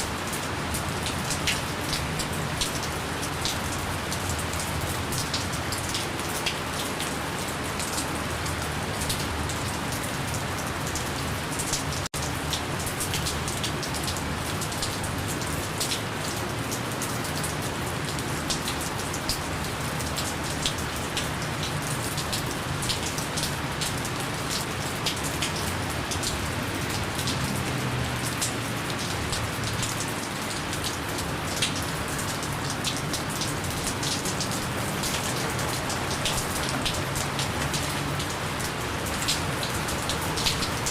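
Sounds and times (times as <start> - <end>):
gentle rain: 0.0 - 40.9
raindrops ticking: 11.7 - 40.9.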